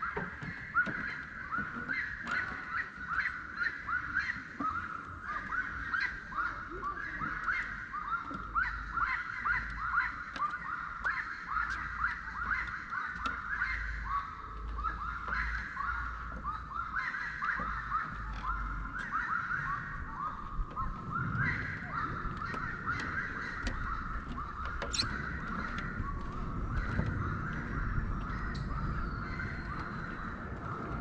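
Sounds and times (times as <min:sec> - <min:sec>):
chorus of birds calling: 0:00.0 - 0:31.0
low outdoor rumble: 0:19.9 - 0:31.0.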